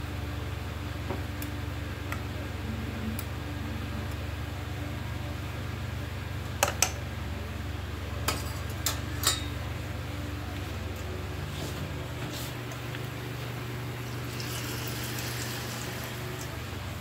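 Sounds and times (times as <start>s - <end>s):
electric fan humming: 0.0s - 17.0s
utensils clinking against bowl: 8.3s - 9.6s.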